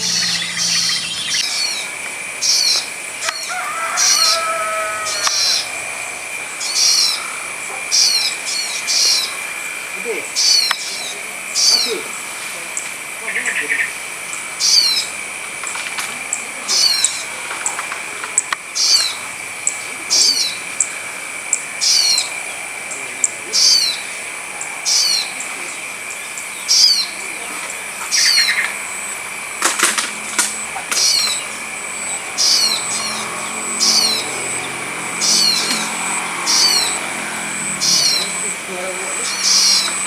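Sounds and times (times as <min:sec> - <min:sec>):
high-pitched drone: 0:00.0 - 0:01.9, 0:30.2 - 0:40.0.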